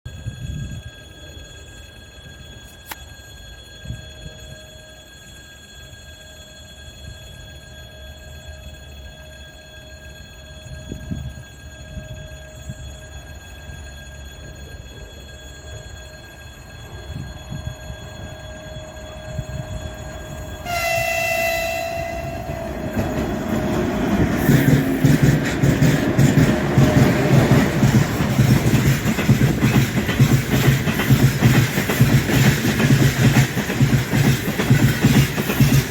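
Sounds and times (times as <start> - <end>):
train rumbling on rails: 0.1 - 35.9
locomotive horn blast: 20.5 - 24.3.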